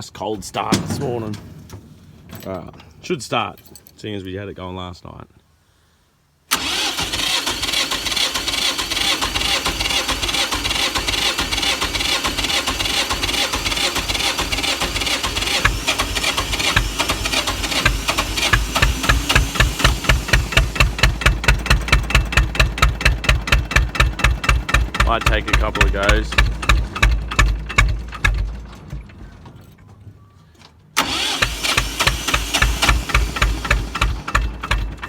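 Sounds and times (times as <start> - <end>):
tractor engine chugging: 0.2 - 4.5, 6.5 - 29.5, 31.0 - 35.0
engine cranking whir: 6.5 - 28.7, 31.0 - 35.0.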